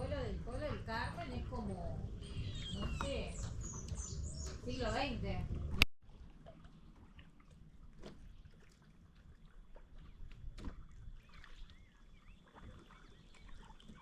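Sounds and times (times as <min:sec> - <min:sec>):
small birds chirping: 0:00.0 - 0:05.4, 0:11.2 - 0:14.0
kayak paddle and hull noise: 0:00.0 - 0:14.0.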